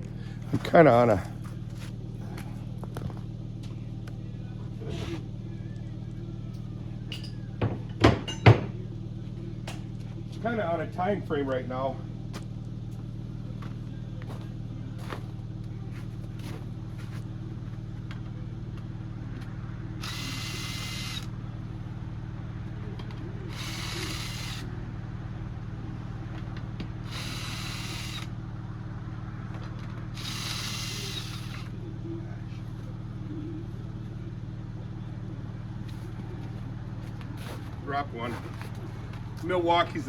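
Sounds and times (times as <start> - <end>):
steady low hum: 0.0 - 40.0
impact wrench bursts: 20.0 - 21.4, 23.4 - 24.7, 26.9 - 28.4, 30.0 - 31.7.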